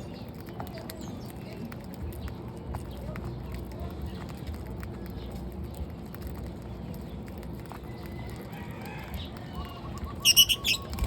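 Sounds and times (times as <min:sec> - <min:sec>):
lovebirds chirping: 0:09.0 - 0:11.0
loud shrill bird calls: 0:10.1 - 0:11.0.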